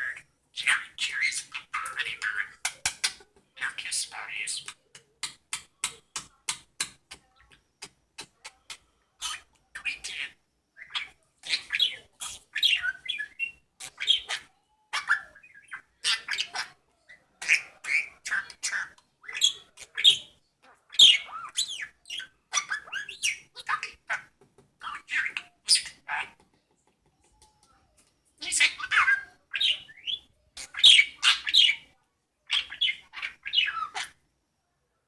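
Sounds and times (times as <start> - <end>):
budgerigar chirping and squawking: 0.0 - 4.8, 9.2 - 26.4, 28.4 - 31.9, 32.5 - 34.2.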